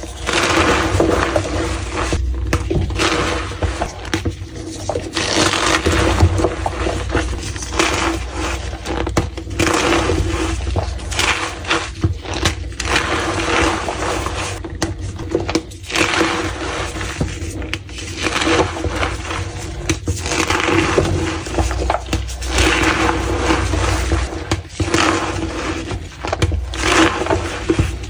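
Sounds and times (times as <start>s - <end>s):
chalk crunching and cracking: 0.0s - 14.6s, 15.2s - 28.0s
steady low hum: 0.0s - 14.6s, 19.0s - 24.6s.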